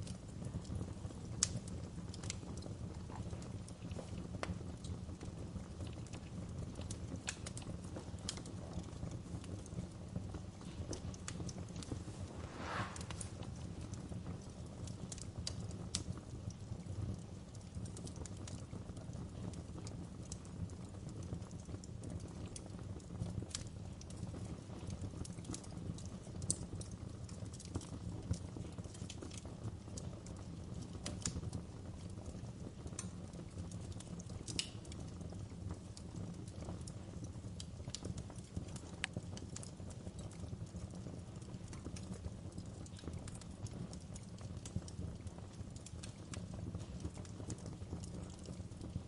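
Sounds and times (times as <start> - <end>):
low rush of flames: 0.0 - 21.0, 23.4 - 49.0
wood fire crackling and popping: 0.0 - 49.0.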